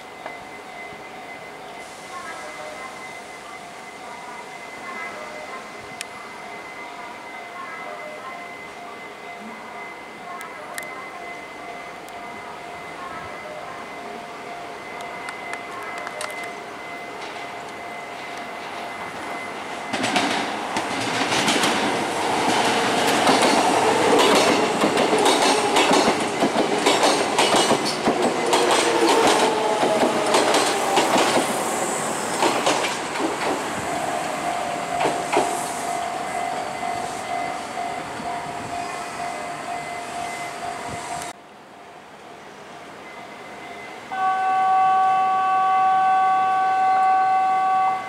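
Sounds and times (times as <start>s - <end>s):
train wheels clattering over rail joints: 19.9s - 31.6s, 32.3s - 33.7s.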